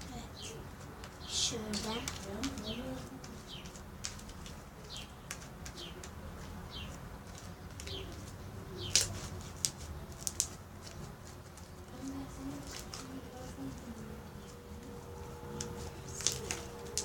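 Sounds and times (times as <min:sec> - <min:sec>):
bird chirping: 0:07.6 - 0:09.0.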